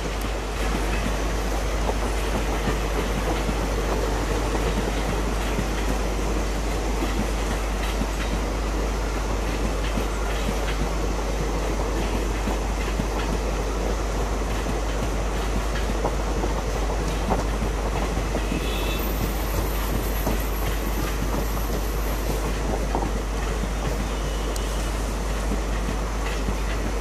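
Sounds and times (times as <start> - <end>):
train wheels clattering over rail joints: 0.0 - 27.0.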